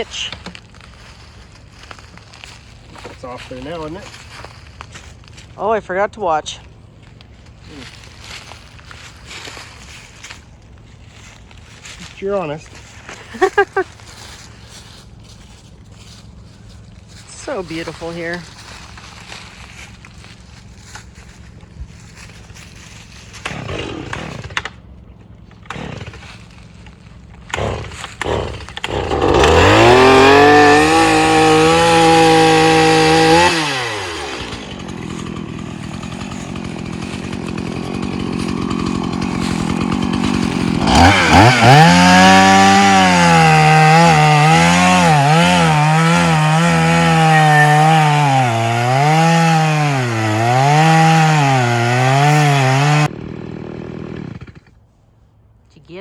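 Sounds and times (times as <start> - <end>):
chainsaw cutting root: 0.0 - 54.9.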